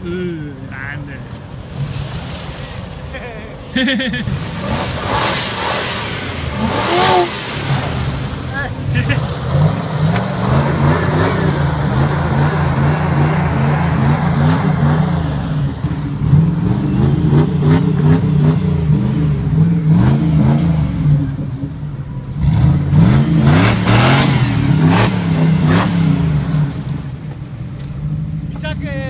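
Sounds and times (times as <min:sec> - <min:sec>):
engine revving: 0:04.1 - 0:27.2.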